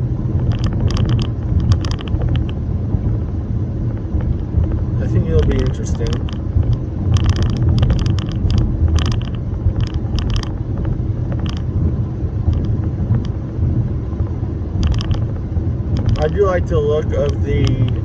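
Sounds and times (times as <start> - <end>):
car rumbling on the move: 0.0 - 18.0
light clicks: 5.4 - 10.6.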